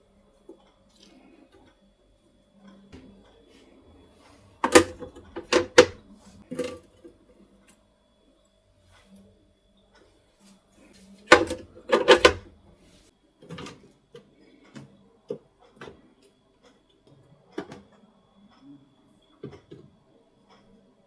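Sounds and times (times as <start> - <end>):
objects knocking and clattering: 4.6 - 7.0, 11.3 - 12.5.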